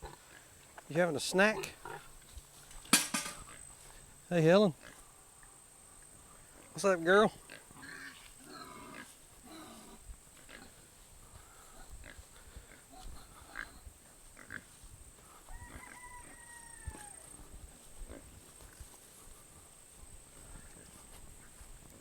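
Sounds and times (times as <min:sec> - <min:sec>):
pigs grunting: 0:00.0 - 0:02.2, 0:04.7 - 0:05.0, 0:06.5 - 0:10.9, 0:11.5 - 0:14.8
drawn-out call: 0:15.5 - 0:17.4.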